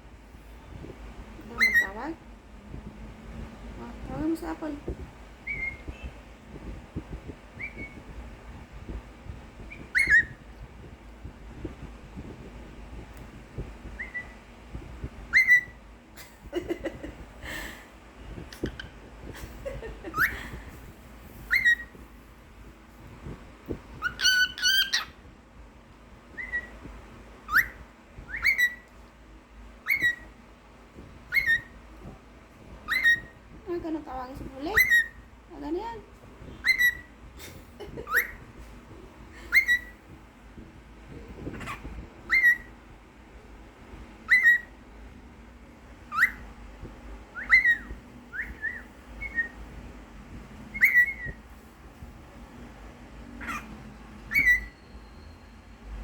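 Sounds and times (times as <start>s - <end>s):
cockatiel whistling: 5.4s - 5.9s, 7.6s - 8.0s, 9.7s - 10.4s, 14.0s - 14.4s, 15.3s - 15.8s, 21.4s - 22.0s, 24.0s - 25.2s, 26.3s - 26.8s, 27.5s - 28.9s, 29.8s - 30.3s, 31.3s - 31.8s, 32.8s - 33.4s, 34.7s - 35.2s, 36.5s - 37.1s, 37.9s - 38.5s, 39.5s - 40.1s, 41.5s - 42.8s, 44.2s - 44.8s, 46.1s - 46.5s, 47.3s - 49.6s, 50.7s - 51.4s, 53.4s - 55.7s.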